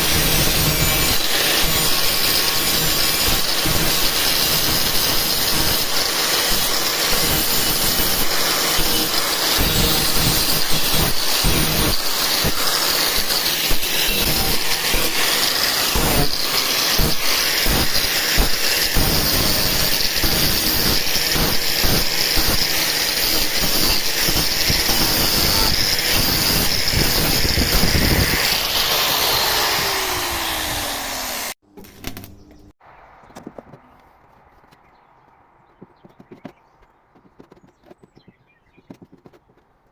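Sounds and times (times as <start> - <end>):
power tool grinding metal: 0.0 - 31.6
tool whine spinning down: 26.7 - 31.6.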